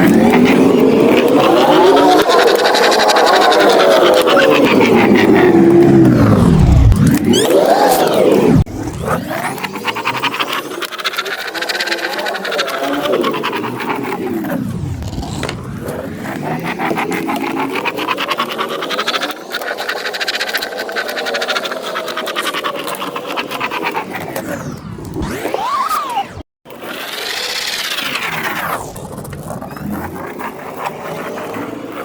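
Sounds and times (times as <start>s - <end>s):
pen squeaking on paper: 9.3s - 24.5s.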